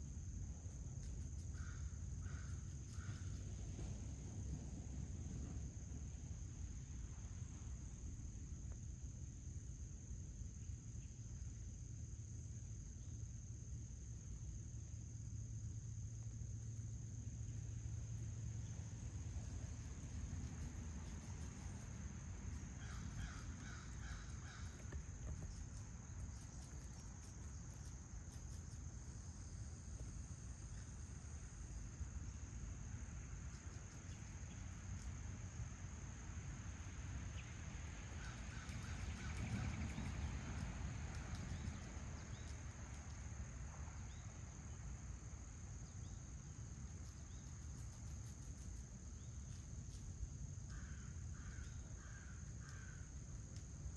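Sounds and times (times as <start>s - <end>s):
insect chorus trilling: 0.0s - 53.9s
low outdoor rumble: 0.0s - 53.9s.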